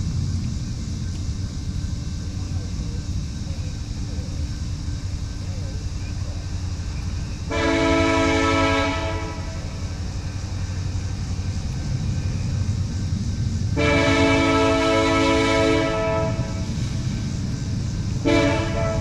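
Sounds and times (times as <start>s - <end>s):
low rumble: 0.0s - 15.4s
locomotive air horn blasts: 7.5s - 9.8s, 13.8s - 16.8s, 18.2s - 19.0s.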